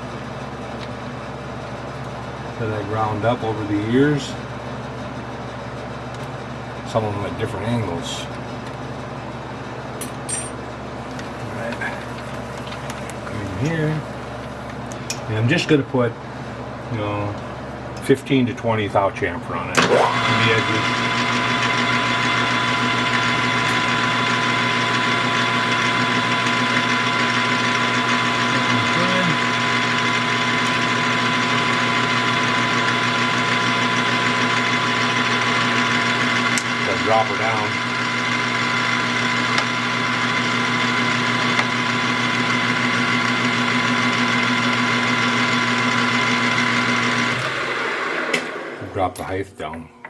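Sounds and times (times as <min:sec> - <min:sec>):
metal lathe motor whine and hum: 0:19.8 - 0:49.0.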